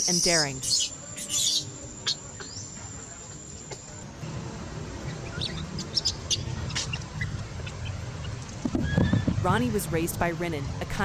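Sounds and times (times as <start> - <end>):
low steady rumble: 4.0 - 11.0.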